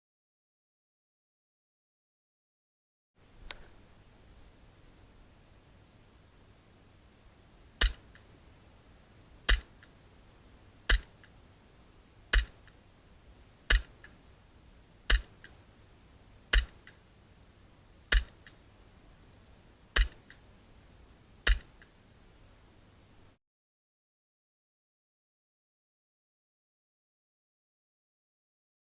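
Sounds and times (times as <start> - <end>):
airsoft pistol shots: 9.5 - 9.7, 12.3 - 12.6, 13.7 - 13.9, 15.1 - 15.3, 16.5 - 16.9, 20.0 - 20.3, 21.5 - 21.7.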